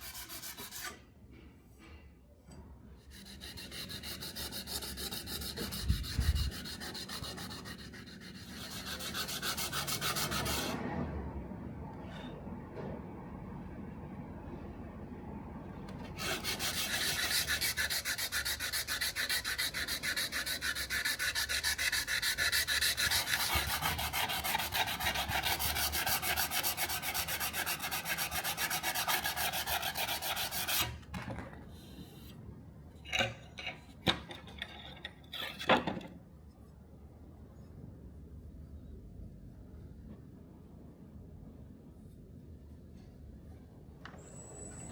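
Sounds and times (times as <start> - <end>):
hand sanding strokes: 0.0 - 1.0, 3.1 - 10.8, 16.0 - 30.9.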